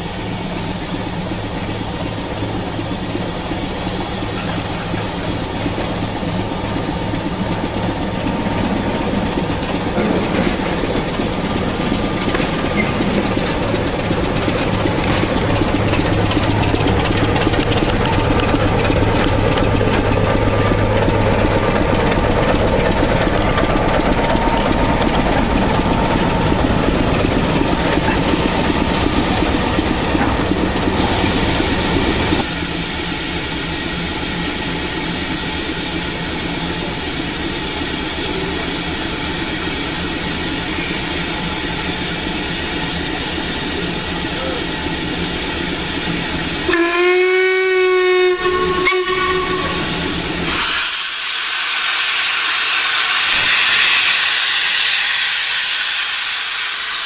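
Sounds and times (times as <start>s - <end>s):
locomotive rumble: 0.0s - 57.0s
loud steam hiss: 0.0s - 57.0s
steam locomotive whistle: 46.4s - 57.0s.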